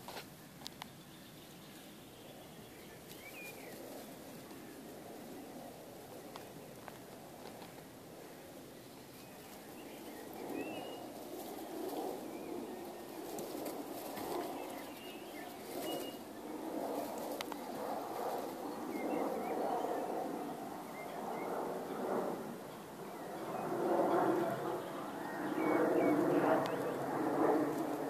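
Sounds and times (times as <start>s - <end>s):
low bird cooing: 9.2s - 21.9s.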